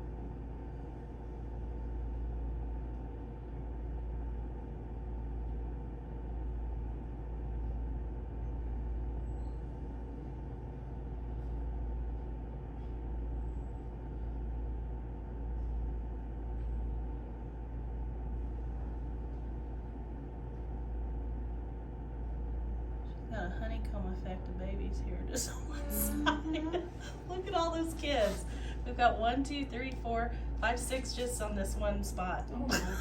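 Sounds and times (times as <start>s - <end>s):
low rumbling hum: 0.0s - 33.0s.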